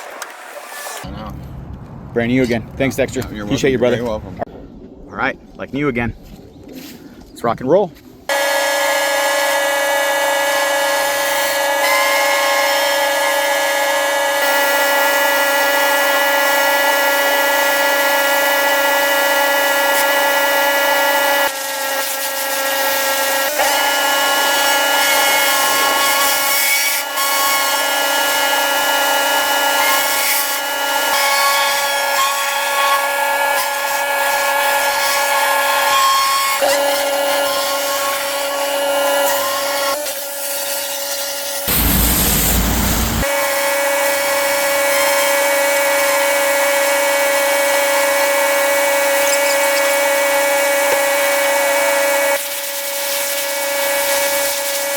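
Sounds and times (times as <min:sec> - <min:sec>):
pressure washer machine whine: 0:08.3 - 0:11.7, 0:14.1 - 0:21.5, 0:41.6 - 0:43.5
hiss of spray: 0:41.7 - 0:43.3.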